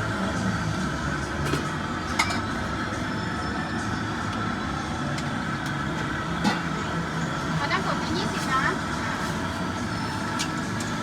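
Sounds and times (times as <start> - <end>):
busy food stall din: 0.0 - 11.0.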